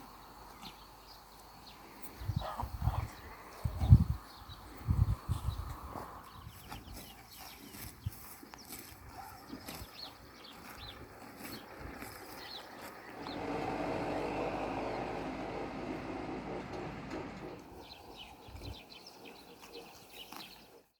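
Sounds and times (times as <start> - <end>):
small birds chirping: 0.0 - 15.8, 17.4 - 20.9
motor vehicle passing: 9.6 - 18.2.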